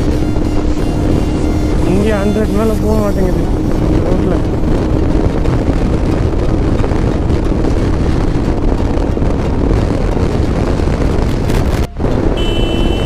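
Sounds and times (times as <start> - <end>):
motorcycle engine and road noise: 0.0 - 13.0
wind buffeting microphone: 0.0 - 13.0
short high beep: 11.9 - 13.0.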